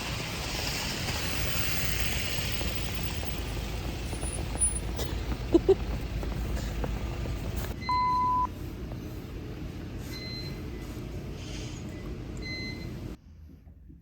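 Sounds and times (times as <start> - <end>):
low background rumble: 2.0 - 12.8
electronic beep: 7.8 - 8.5
faint higher beeps: 7.8 - 8.5.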